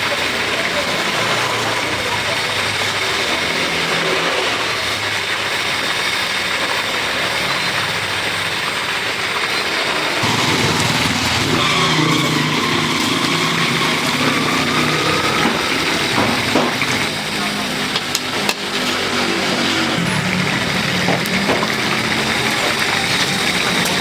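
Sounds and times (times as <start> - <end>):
street hubbub: 0.0 - 24.0
vehicle engine running: 0.0 - 24.0.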